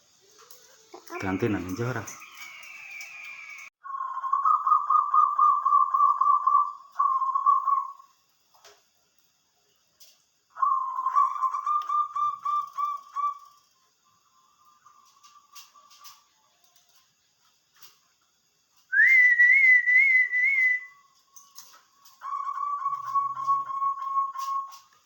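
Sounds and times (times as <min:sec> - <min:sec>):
dove cooing: 0:03.9 - 0:08.0, 0:10.6 - 0:13.5, 0:22.2 - 0:24.8.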